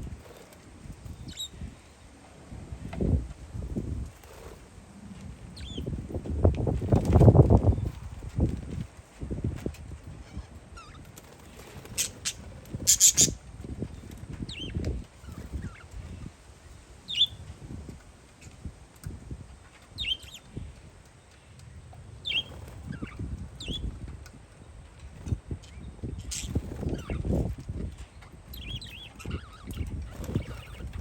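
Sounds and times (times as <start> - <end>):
wind rumbling on microphone: 0.0 - 31.0
parakeets chirping: 1.1 - 1.7, 5.6 - 5.9, 10.2 - 13.4, 17.0 - 17.4, 19.7 - 20.5, 22.2 - 23.9, 25.6 - 27.4, 28.5 - 31.0.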